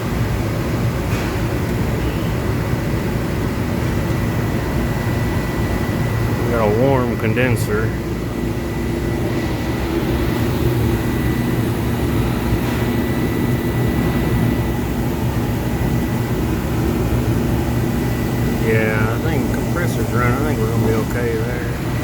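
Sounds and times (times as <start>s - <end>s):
compressor humming: 0.0s - 22.0s
faint high whine: 17.2s - 22.0s.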